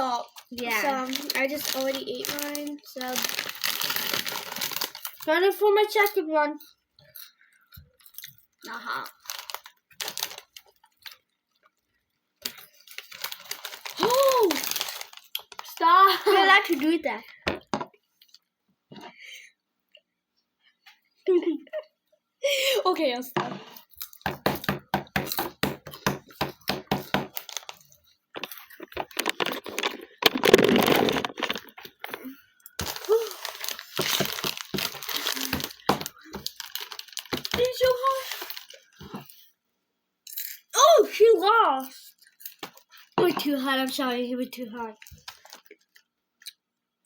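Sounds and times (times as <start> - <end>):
chewing crunchy snacks: 0.4 - 5.3, 6.0 - 15.8, 27.3 - 39.4.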